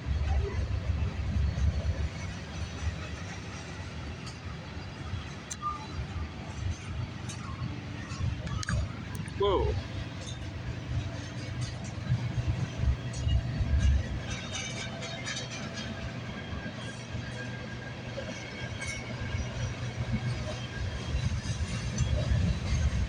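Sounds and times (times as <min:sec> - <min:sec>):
freight train rumbling past: 0:00.0 - 0:23.0
train wheels clicking and knocking: 0:06.6 - 0:23.0.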